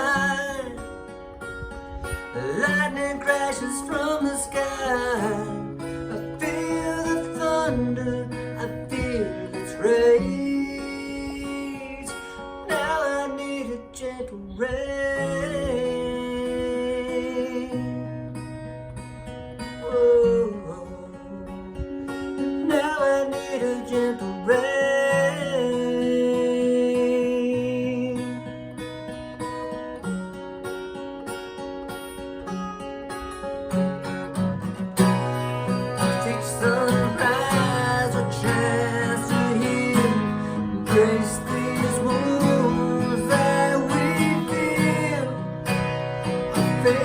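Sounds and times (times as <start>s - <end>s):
acoustic guitar playing: 0.0s - 47.0s
person singing wordless melody: 2.4s - 17.8s, 35.7s - 47.0s.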